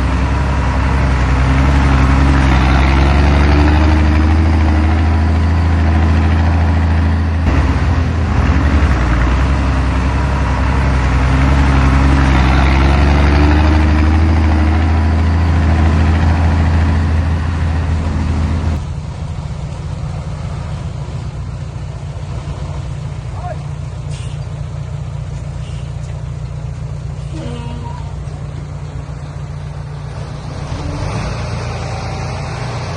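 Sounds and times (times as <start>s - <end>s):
heavy diesel engine running: 0.0s - 32.9s.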